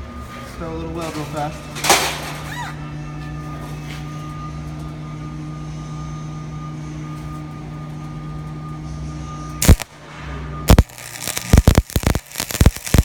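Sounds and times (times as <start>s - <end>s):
welder humming: 0.0s - 13.0s
welding arc crackle: 9.6s - 10.0s, 10.7s - 13.0s.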